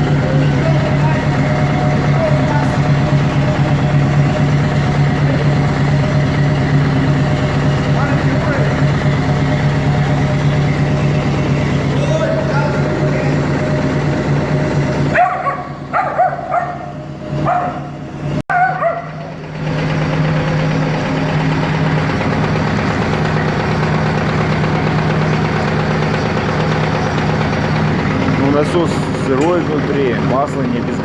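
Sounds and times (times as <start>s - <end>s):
vacuum pump running: 0.0s - 31.0s
dog barking: 15.1s - 19.3s.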